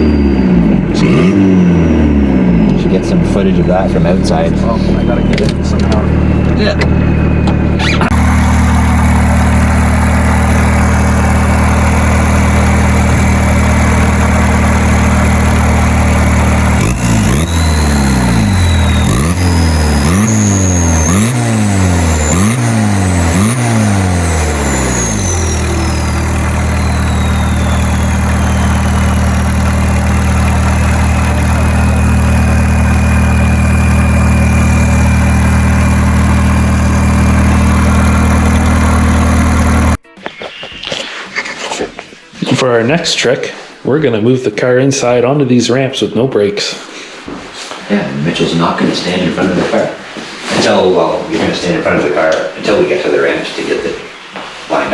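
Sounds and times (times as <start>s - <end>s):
diesel engine revving: 0.0s - 40.0s
turbo whine: 0.0s - 42.6s.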